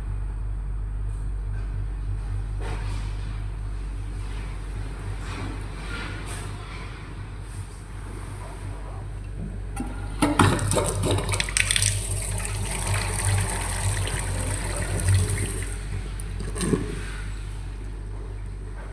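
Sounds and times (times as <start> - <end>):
water running from tap: 10.2 - 17.0.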